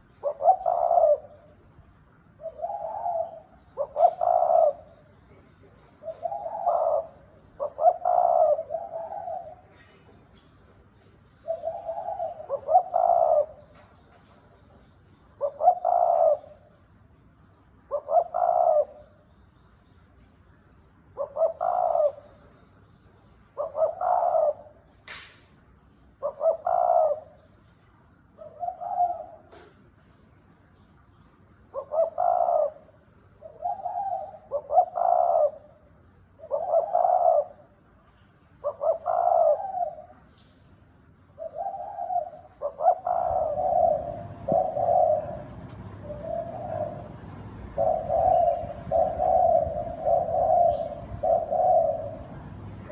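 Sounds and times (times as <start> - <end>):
dove cooing: 0.0 - 1.7, 2.3 - 16.8, 17.9 - 19.2, 21.1 - 22.6, 23.5 - 24.8, 26.2 - 27.5, 28.4 - 29.8, 31.7 - 37.8, 38.6 - 40.3, 41.3 - 52.9.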